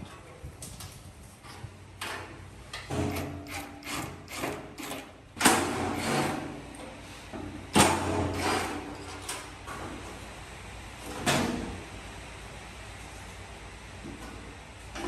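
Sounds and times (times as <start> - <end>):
tools knocking and scraping metal: 1.4 - 6.4.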